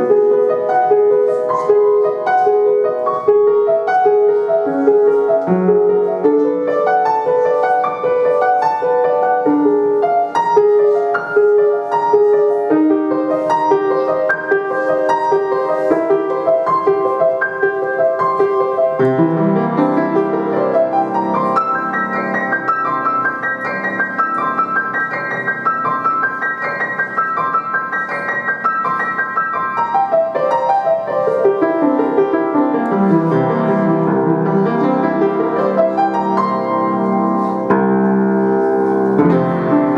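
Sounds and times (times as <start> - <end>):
solo piano piece: 0.0 - 39.9.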